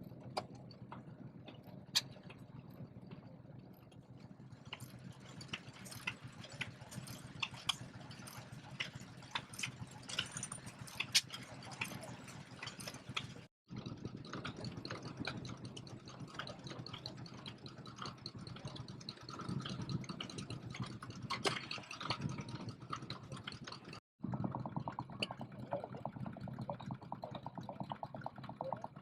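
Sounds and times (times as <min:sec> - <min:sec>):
engine irregular mechanical clatter: 0:00.0 - 0:29.0
engine with fast even beat: 0:00.0 - 0:29.0.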